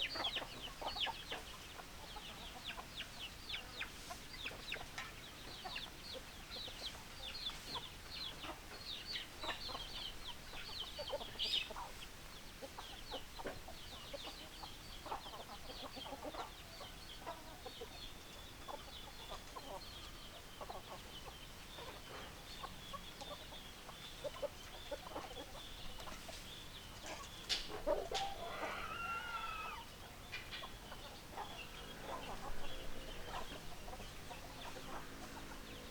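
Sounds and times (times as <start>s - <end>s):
chickens clucking: 0.0s - 35.9s
rooster crowing: 28.0s - 29.9s.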